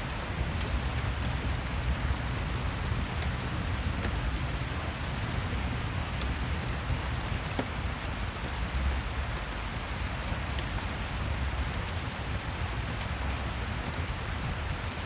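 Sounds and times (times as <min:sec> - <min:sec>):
rain hiss: 0:01.4 - 0:09.3.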